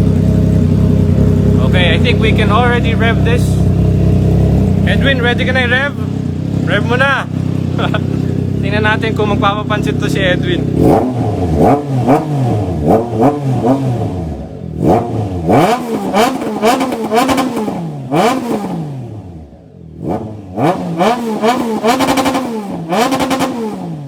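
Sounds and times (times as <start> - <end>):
exhaust crackles: 0.0 - 24.0
motorcycle engine revving: 0.0 - 24.0.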